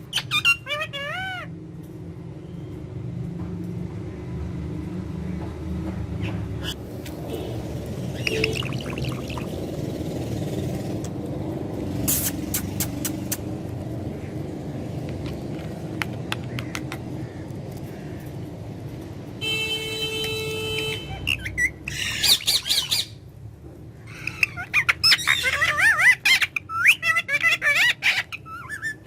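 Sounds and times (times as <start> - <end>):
parrot squawking and chattering: 0.0 - 1.6, 6.2 - 6.9, 8.0 - 9.7, 12.0 - 13.6, 20.8 - 23.2, 24.0 - 29.0.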